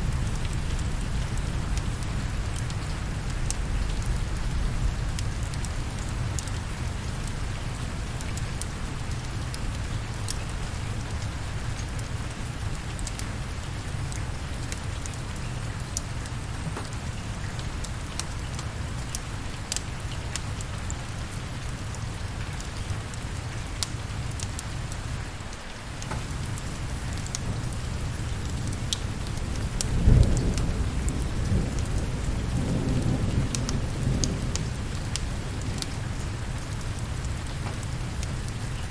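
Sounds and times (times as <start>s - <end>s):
steady rain: 0.0s - 38.9s
thunder rumbling: 26.1s - 38.7s.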